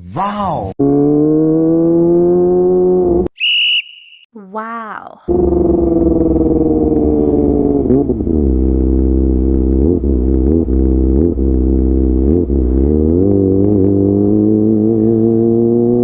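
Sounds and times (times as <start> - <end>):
motorcycle engine revving: 0.8 - 3.3, 5.3 - 16.0
high whistle-like tone: 3.4 - 4.3.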